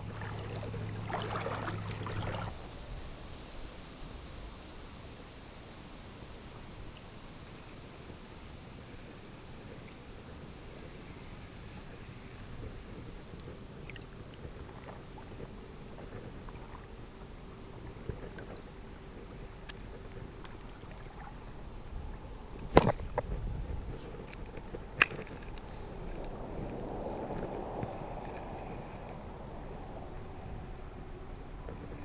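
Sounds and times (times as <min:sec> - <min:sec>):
outdoor background hiss: 0:00.0 - 0:32.0.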